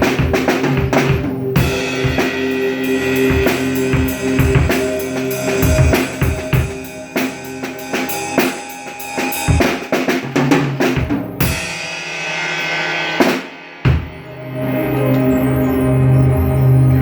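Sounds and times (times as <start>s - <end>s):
drum kit playing: 0.0s - 14.5s
steady held tones: 0.0s - 17.0s
ringing cymbal crash: 1.5s - 10.4s, 11.4s - 15.2s.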